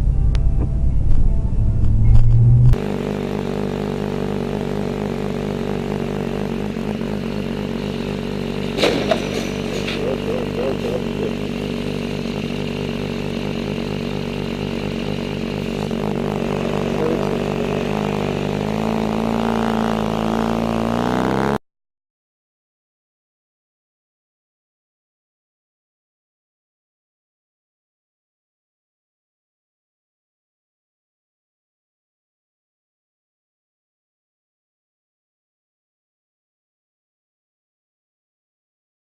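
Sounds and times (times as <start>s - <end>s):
loud low rumble: 0.0s - 2.8s
vehicle engine running: 0.0s - 21.6s.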